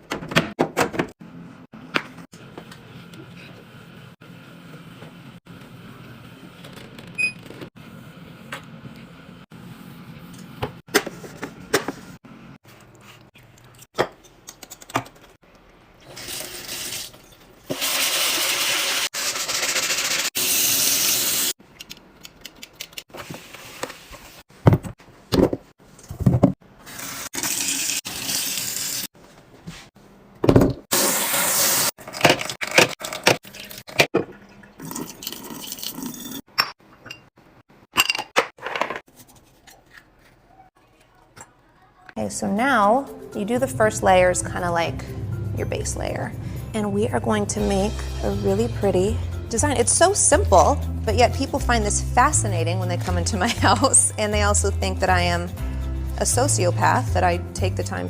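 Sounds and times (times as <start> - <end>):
water running from a tap: 16.1 - 21.5, 26.9 - 29.1.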